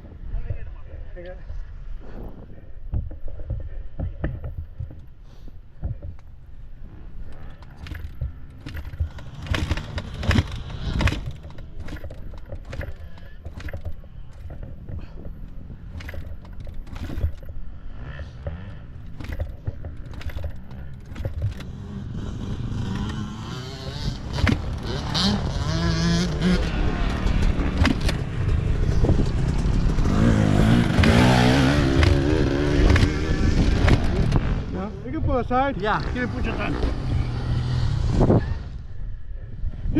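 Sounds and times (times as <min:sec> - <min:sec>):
dirt bike engine running: 0:02.5 - 0:39.0.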